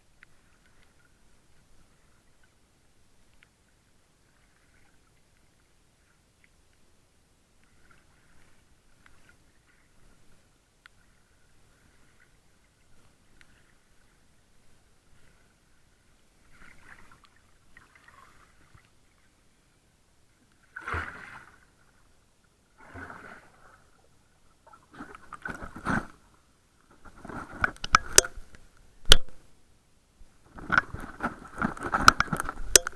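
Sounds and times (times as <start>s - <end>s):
water sloshing and splashing: 16.4s - 19.0s, 20.6s - 21.9s, 24.6s - 28.5s, 30.5s - 32.9s
sharp clicks or knocks: 27.6s - 29.4s, 31.7s - 32.9s.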